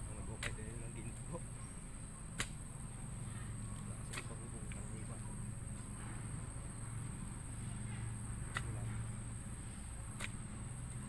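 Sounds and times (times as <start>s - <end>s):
digging bar striking soil: 0.2s - 1.2s, 2.3s - 2.6s, 3.8s - 4.8s, 8.0s - 11.0s.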